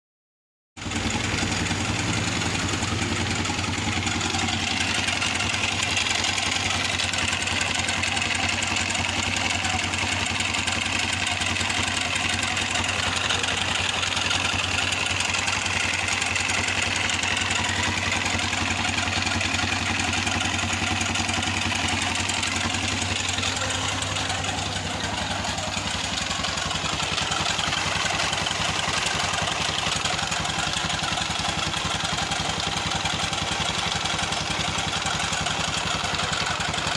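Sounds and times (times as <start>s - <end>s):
engine idling with abnormal noise: 0.8s - 36.9s.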